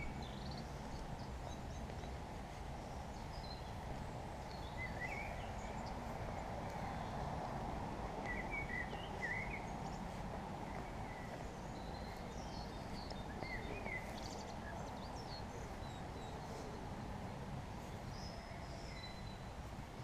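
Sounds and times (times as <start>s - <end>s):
low background noise: 0.0s - 20.0s
songbirds chirping and singing: 0.0s - 20.0s.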